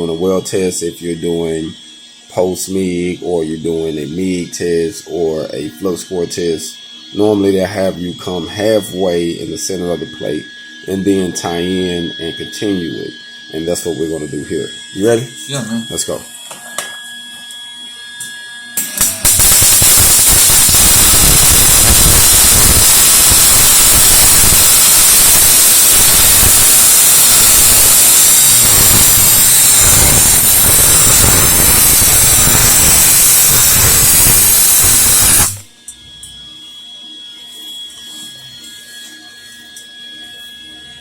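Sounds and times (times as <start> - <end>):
welding arc crackling: 18.8 - 35.8.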